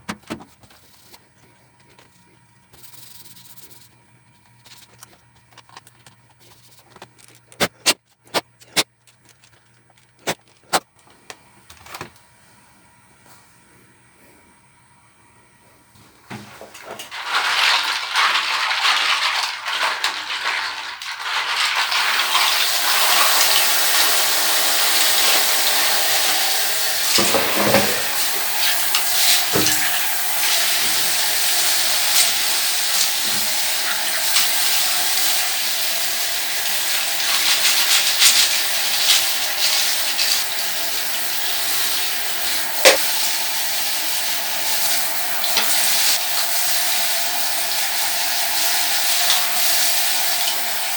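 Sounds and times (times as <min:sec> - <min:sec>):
tap water running and splashing: 0:16.3 - 0:50.9.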